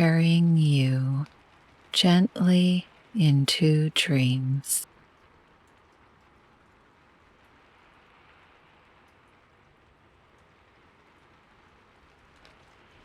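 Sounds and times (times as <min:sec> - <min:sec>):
faint rain falling: 0:00.0 - 0:13.0.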